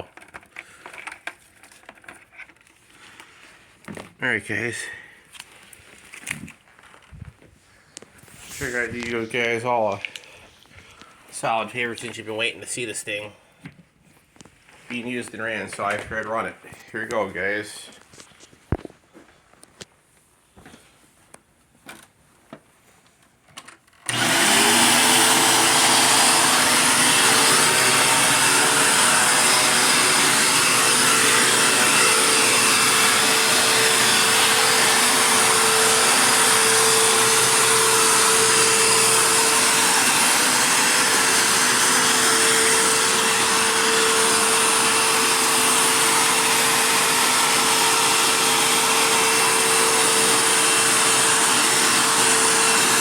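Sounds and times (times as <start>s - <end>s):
vacuum cleaner running: 8.4s - 9.6s, 24.1s - 53.0s.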